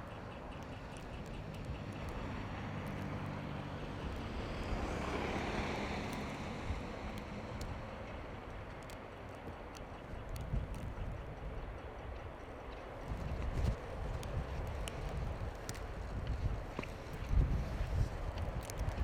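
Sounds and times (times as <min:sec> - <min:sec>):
motor vehicle passing: 0:00.4 - 0:08.4.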